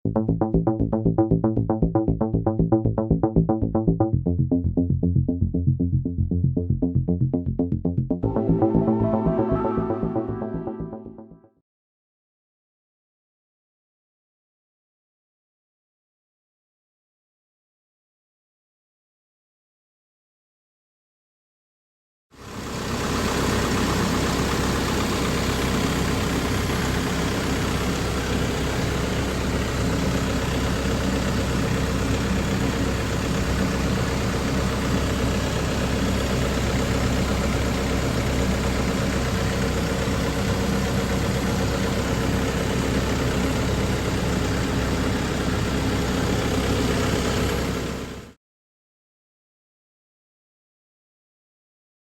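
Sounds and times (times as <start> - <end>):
diesel engine idling: 22.4 - 48.3.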